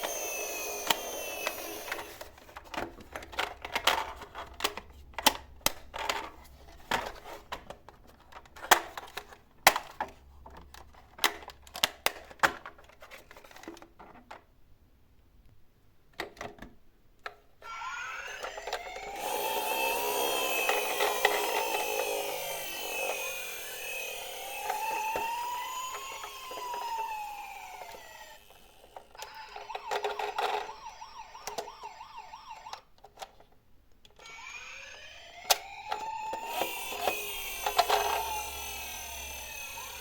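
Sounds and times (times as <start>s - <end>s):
emergency siren wailing: 17.7s - 32.9s, 34.2s - 40.0s.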